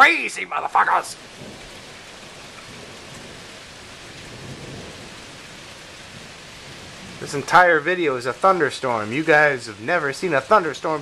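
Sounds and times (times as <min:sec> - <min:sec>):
heavy rain falling: 0:00.0 - 0:11.0
low rumble of thunder: 0:01.2 - 0:07.9.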